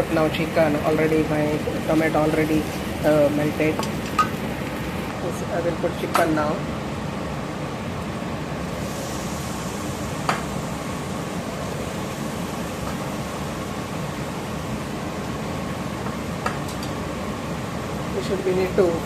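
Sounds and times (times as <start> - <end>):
food frying in a pan: 0.0 - 5.2.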